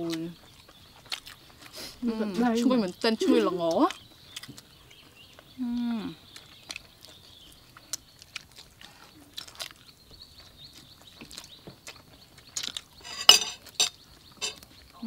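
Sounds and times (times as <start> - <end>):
people chewing crispy chicken: 0.0 - 15.0.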